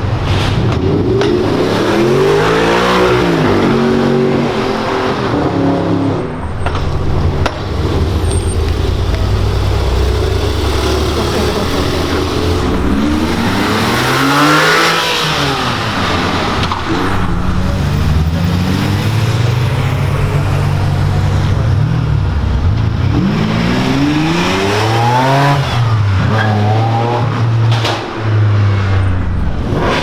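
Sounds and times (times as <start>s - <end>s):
car engines revving past: 0.0s - 30.0s
low engine rumble: 6.2s - 14.2s, 15.7s - 24.3s.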